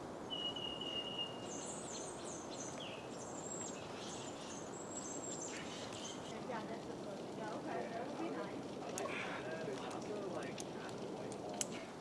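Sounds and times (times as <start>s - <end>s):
outdoor background hiss: 0.0s - 12.0s
birds singing: 0.3s - 6.4s.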